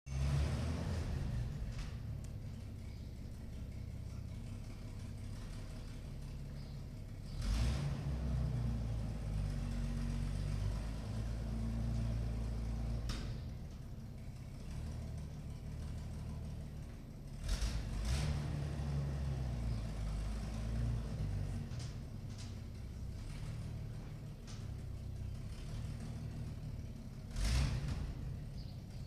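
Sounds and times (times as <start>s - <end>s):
truck engine running: 0.1s - 29.0s.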